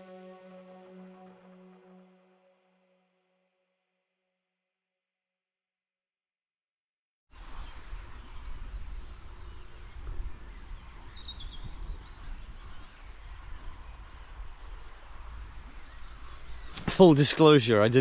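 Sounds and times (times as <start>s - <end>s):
birds chirping: 7.4s - 18.0s.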